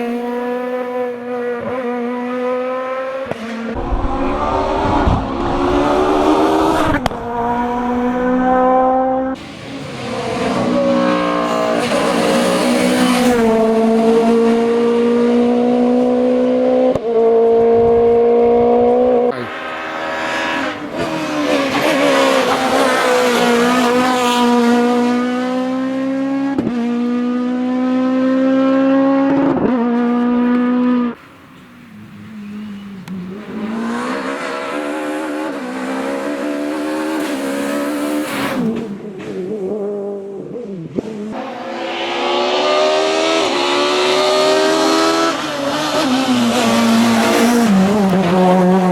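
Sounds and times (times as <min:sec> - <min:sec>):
rally car engines revving: 0:00.0 - 0:31.2, 0:31.9 - 0:48.9.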